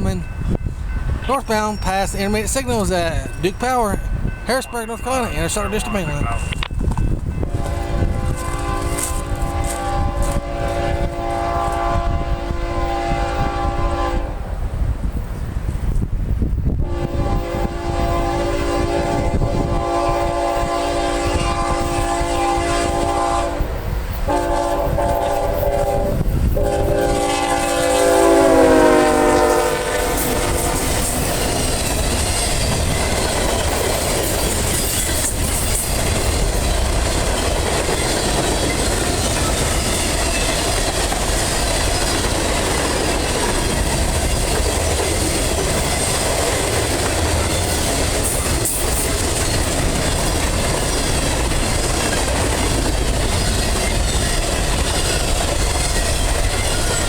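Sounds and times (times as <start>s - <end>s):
train cars rumbling on rails: 0.0s - 57.0s
locomotive horn blasts: 7.4s - 14.4s, 16.8s - 23.7s, 24.3s - 31.2s.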